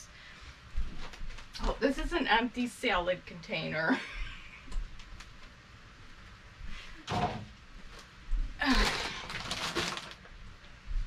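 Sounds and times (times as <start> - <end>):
plastic packaging rustling: 7.9 - 10.4.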